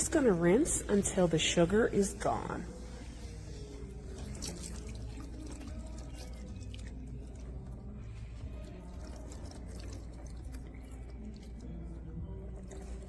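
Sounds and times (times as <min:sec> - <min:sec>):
water splashing over hands: 0:04.1 - 0:07.3.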